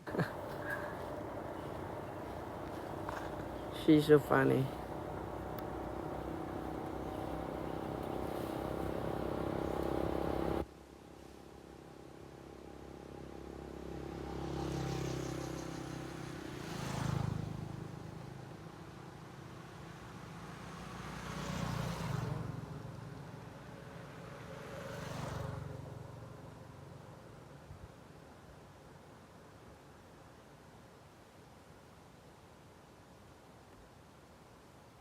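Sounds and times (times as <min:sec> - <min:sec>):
vehicles passing: 0:00.0 - 0:10.7, 0:13.0 - 0:27.0
background traffic: 0:00.0 - 0:10.8, 0:11.6 - 0:29.2.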